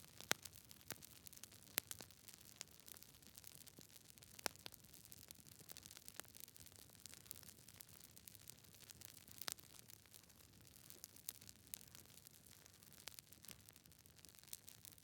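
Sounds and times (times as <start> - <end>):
campfire crackling: 0.1 - 15.0
burning wood pops and snaps: 0.2 - 1.1, 1.8 - 3.0.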